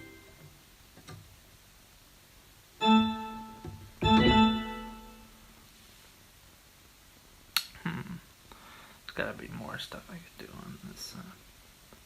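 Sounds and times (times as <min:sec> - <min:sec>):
organ-like keyboard notes: 0:00.0 - 0:00.4, 0:02.8 - 0:05.4.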